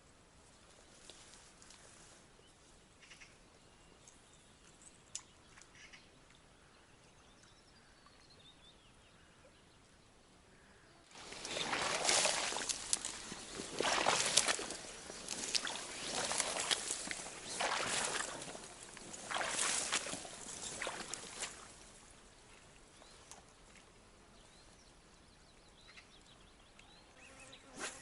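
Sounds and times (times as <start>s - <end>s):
water sloshing and splashing: 11.1s - 22.1s.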